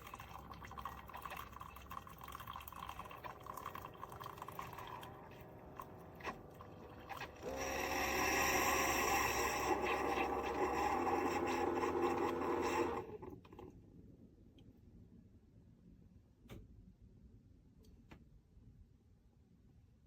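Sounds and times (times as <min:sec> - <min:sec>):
small electric motor whirring: 0:07.2 - 0:13.2.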